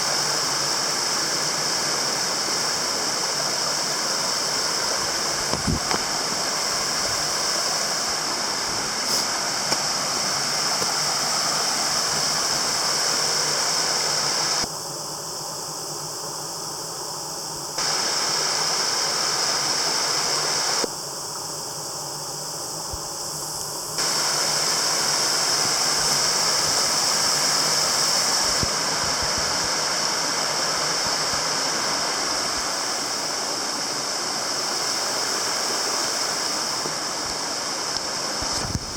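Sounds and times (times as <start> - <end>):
water rushing over waterfall: 17.8 - 20.8, 24.0 - 38.9.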